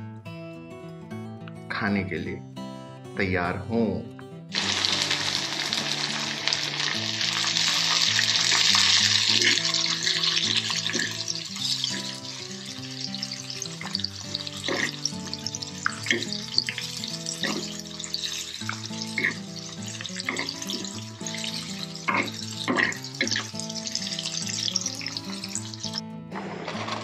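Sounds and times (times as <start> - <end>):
background music: 0.0 - 27.0
vegetables sizzling: 4.5 - 26.0.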